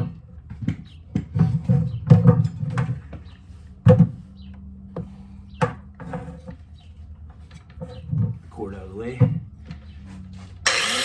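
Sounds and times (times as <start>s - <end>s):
tools knocking and clattering: 0.0s - 4.2s.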